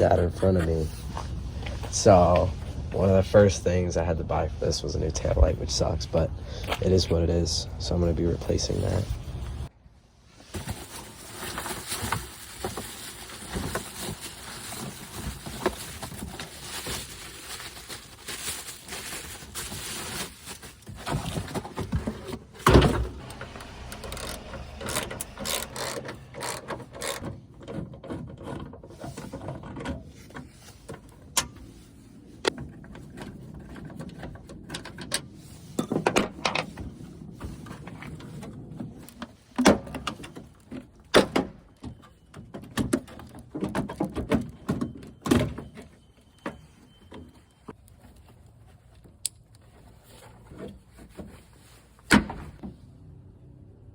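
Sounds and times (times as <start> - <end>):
tools and plastic parts clicking: 24.0 - 29.8.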